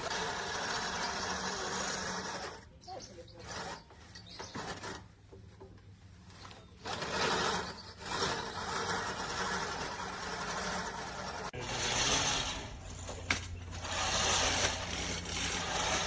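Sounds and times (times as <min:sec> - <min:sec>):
reel mower whirring clipping grass: 0:00.0 - 0:02.6, 0:06.5 - 0:16.0.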